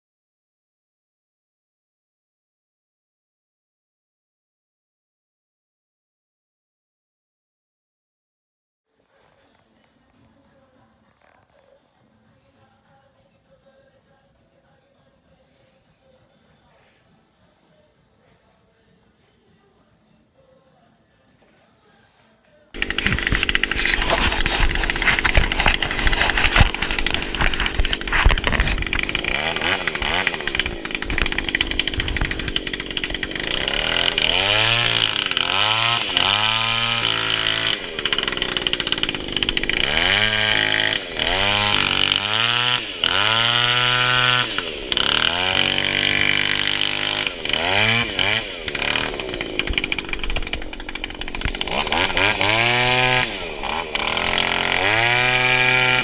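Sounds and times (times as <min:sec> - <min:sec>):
power tool cutting wood: 0:22.8 - 0:56.0.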